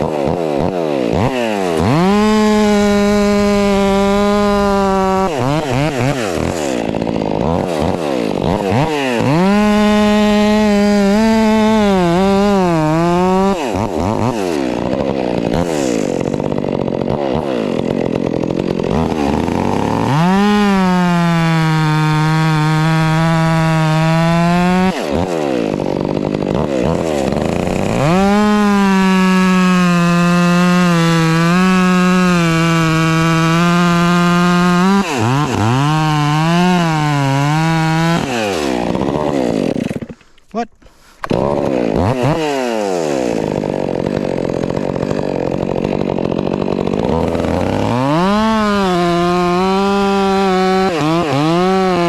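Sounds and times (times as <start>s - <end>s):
chainsaw cutting logs: 0.0s - 52.0s.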